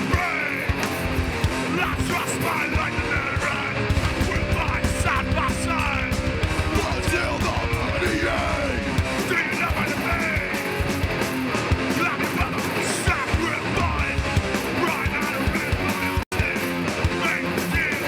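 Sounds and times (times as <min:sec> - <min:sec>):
distorted electric guitars: 0:00.0 - 0:18.0
drums: 0:00.0 - 0:18.0
person yelling vocals: 0:01.7 - 0:10.5.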